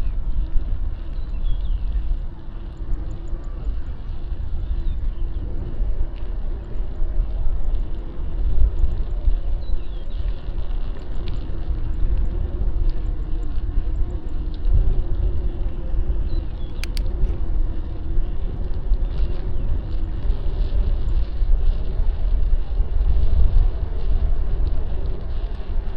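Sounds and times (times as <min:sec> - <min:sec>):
sharp click: 0:16.7 - 0:17.1.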